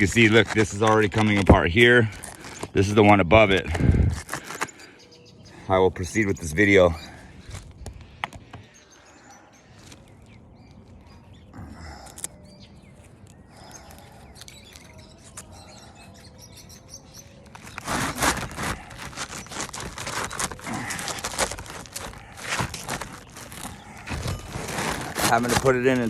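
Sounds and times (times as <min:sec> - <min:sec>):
loud scraping and rustling: 0:00.0 - 0:04.9, 0:17.4 - 0:26.0
birds chirping faintly: 0:00.0 - 0:26.0.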